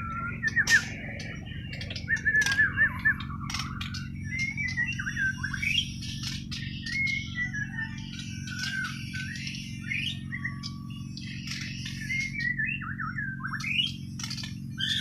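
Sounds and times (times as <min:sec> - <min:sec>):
bird singing whistled notes: 0:00.0 - 0:15.0
steady low hum: 0:00.0 - 0:15.0
sharp bird clicking notes: 0:00.4 - 0:07.2, 0:13.5 - 0:15.0.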